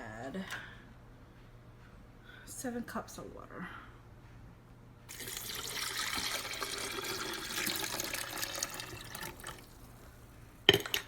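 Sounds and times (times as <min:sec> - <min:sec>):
water pouring into reservoir: 0:05.1 - 0:10.0.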